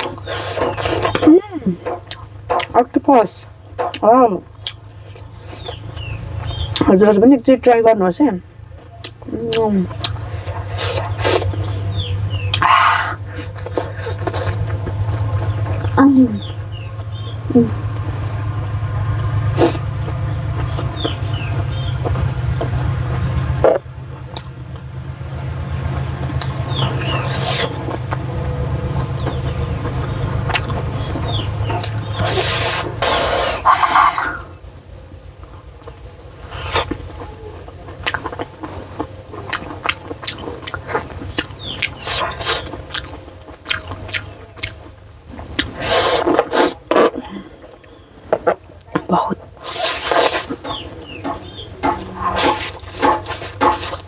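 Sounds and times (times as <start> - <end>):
person chewing: 0.0 - 2.8, 3.8 - 6.9, 8.8 - 24.9, 25.9 - 34.4, 35.4 - 54.0
low hum: 0.0 - 54.0
wet mouth clicks: 49.6 - 50.7, 52.3 - 54.0.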